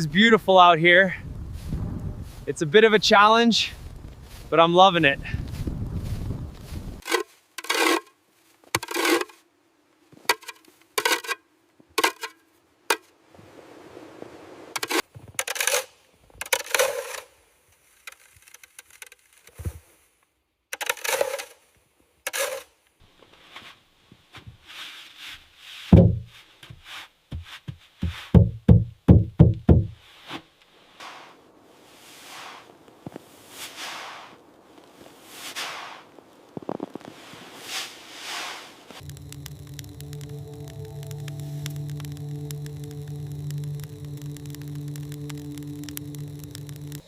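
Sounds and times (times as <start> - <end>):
scraping crunching strokes: 1.5 - 9.4, 30.1 - 47.0
dull knocks: 25.9 - 26.3, 27.4 - 30.0.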